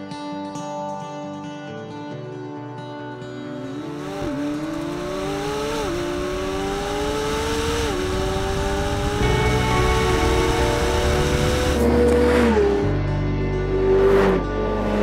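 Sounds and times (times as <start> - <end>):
background music: 0.0 - 15.0
car engine accelerating through gears: 3.6 - 15.0.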